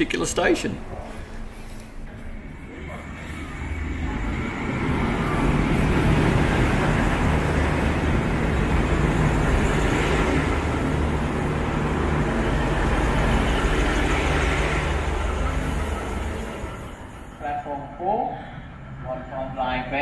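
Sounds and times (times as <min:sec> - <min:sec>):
diesel engine drone: 0:00.0 - 0:20.0
train wheels rumbling on track: 0:03.1 - 0:18.1.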